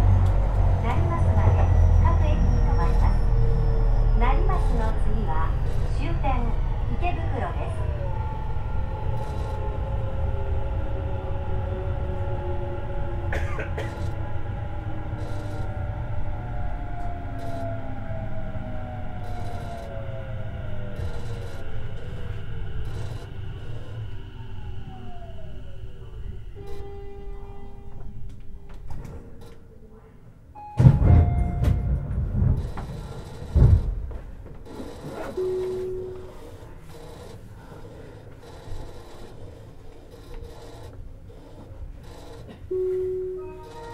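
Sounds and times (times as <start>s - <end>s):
traction motor whine: 0.0s - 28.4s, 31.0s - 43.9s
train wheels rumbling on rail: 0.0s - 29.6s, 30.7s - 43.9s
heavy thumps with air rush: 30.8s - 34.6s
short steady tone: 35.2s - 37.2s, 42.7s - 43.9s.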